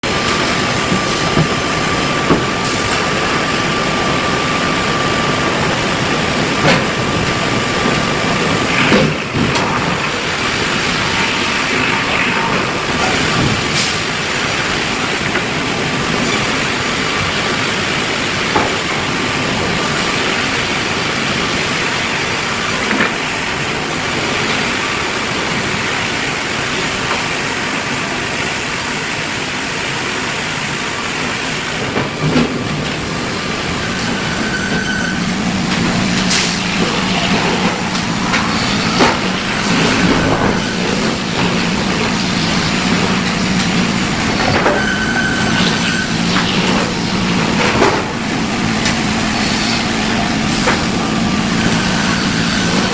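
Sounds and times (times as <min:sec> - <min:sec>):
sawmill machinery din: 0:00.0 - 0:27.6, 0:30.6 - 0:52.9
high machine whine: 0:30.6 - 0:52.9.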